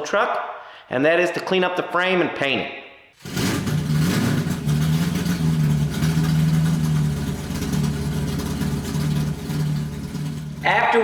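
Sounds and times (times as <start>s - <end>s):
pickup engine idling: 3.2s - 11.0s.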